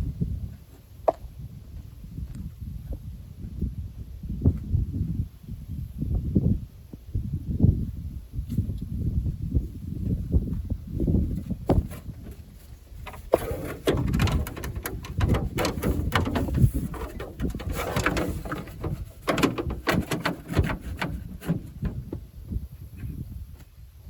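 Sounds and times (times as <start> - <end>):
parts clicking and clattering: 13.0 - 22.2.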